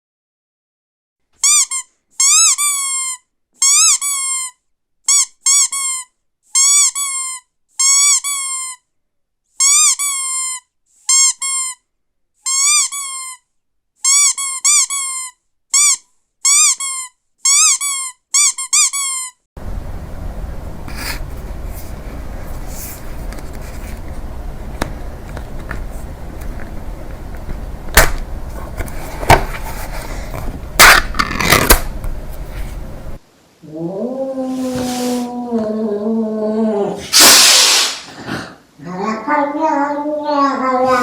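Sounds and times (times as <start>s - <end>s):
short high squeaks: 12.4s - 13.4s
room noise: 19.6s - 41.0s.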